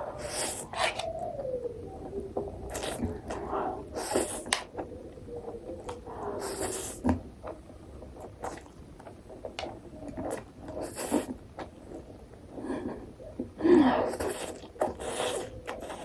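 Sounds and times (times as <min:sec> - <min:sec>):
slurping: 0:00.2 - 0:01.1, 0:02.6 - 0:04.7, 0:06.0 - 0:07.1, 0:10.2 - 0:11.4, 0:13.9 - 0:16.0
person chewing: 0:02.6 - 0:04.9, 0:05.8 - 0:09.4, 0:10.1 - 0:12.1, 0:14.0 - 0:16.0.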